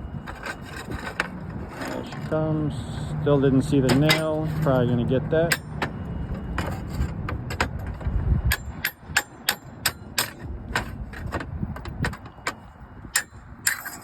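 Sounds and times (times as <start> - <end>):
hammer striking metal: 8.5 - 10.5.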